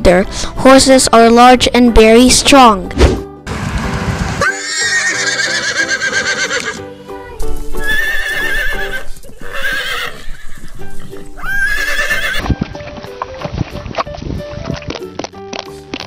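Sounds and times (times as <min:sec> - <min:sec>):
background music: 0:00.0 - 0:16.0
horse neighing: 0:04.4 - 0:06.8, 0:07.8 - 0:10.8, 0:11.4 - 0:12.5.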